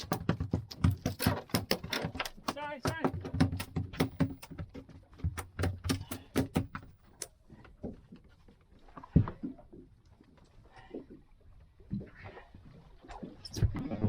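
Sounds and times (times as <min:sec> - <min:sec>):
fish thrashing on boat deck: 0:00.0 - 0:08.2.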